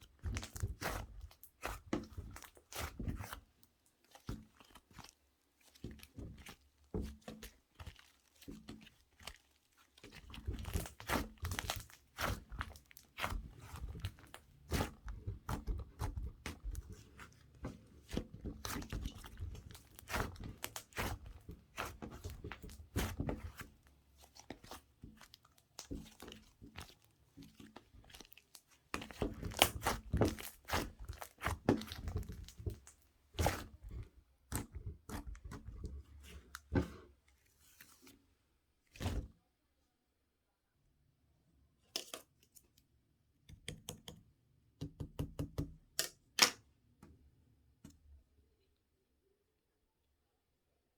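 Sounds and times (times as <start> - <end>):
slime squishing and crackling: 0.1 - 3.5, 4.1 - 35.8.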